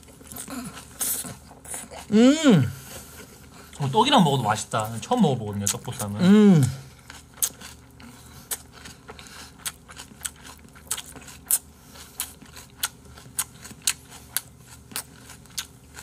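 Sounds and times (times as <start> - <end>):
open-mouth wet chewing: 5.6 - 16.0.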